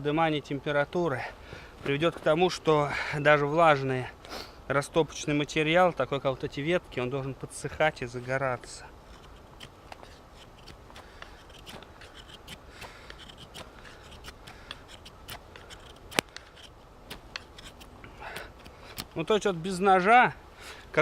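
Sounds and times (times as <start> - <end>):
knife blade shaving wood: 8.7 - 19.4.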